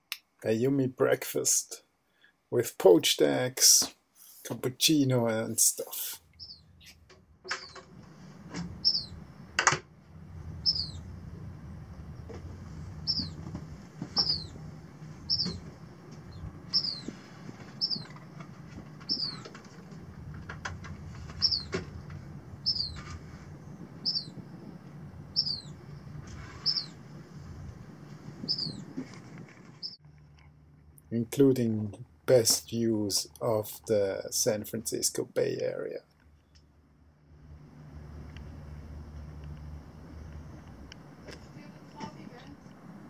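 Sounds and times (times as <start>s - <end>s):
low steady hum: 4.5s - 43.0s
small bird chirping: 6.2s - 7.9s, 8.8s - 9.2s, 10.5s - 11.2s, 12.9s - 13.4s, 14.1s - 18.4s, 19.0s - 19.6s, 21.2s - 21.8s, 22.6s - 27.1s, 28.4s - 29.0s, 29.8s - 30.0s
sharp clicks and knocks: 9.6s - 9.9s, 18.0s - 22.2s.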